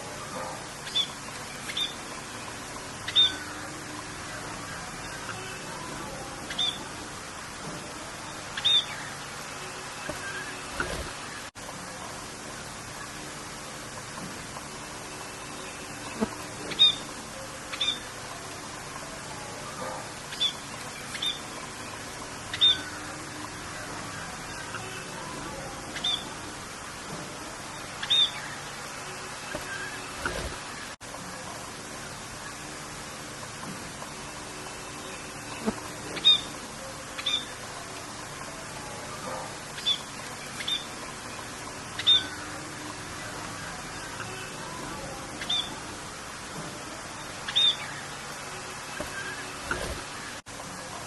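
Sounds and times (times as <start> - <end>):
birds chirping: 0.0 - 11.5, 12.8 - 31.0, 32.0 - 50.4
rain hiss: 0.0 - 51.0
bird chirps: 0.8 - 2.1, 6.5 - 6.9, 8.6 - 9.2, 22.5 - 23.0, 26.0 - 26.4, 28.0 - 28.6, 35.5 - 36.5, 39.8 - 41.0, 42.0 - 42.5, 45.4 - 45.8, 47.4 - 48.1.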